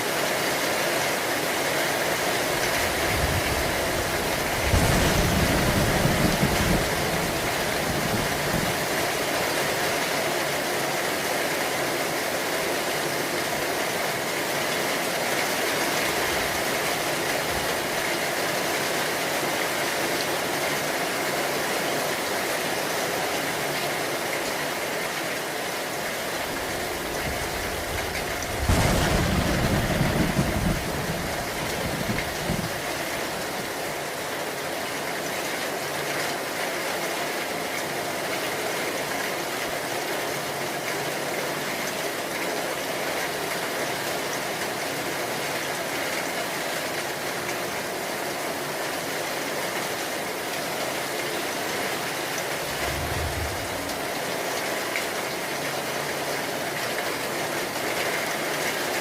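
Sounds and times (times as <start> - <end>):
heavy rain: 0.0 - 59.0
low thunder rumble: 2.8 - 9.1, 26.4 - 33.4, 52.4 - 54.7.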